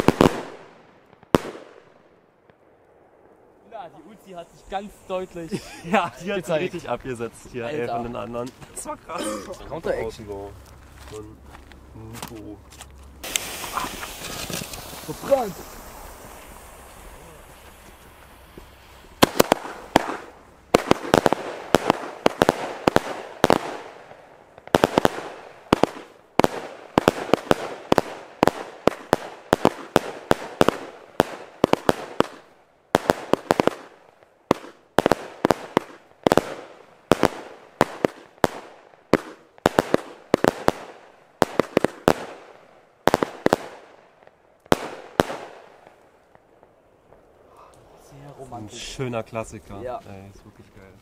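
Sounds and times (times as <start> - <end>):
firework bangs: 0.0 - 8.5, 12.1 - 47.3.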